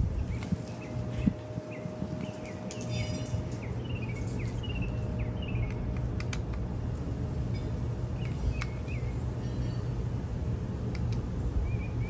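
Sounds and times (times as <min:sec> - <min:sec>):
low steady hum: 0:00.0 - 0:12.0
bird chirping: 0:00.2 - 0:05.9.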